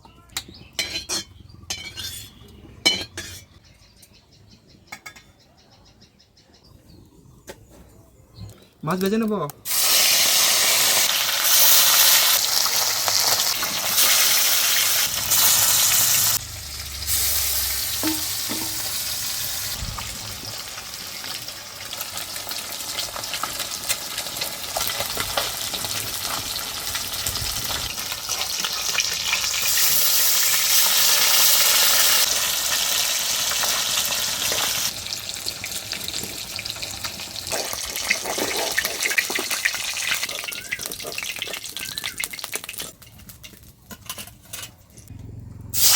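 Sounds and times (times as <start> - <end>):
fish sizzling in hot oil: 9.7 - 43.3.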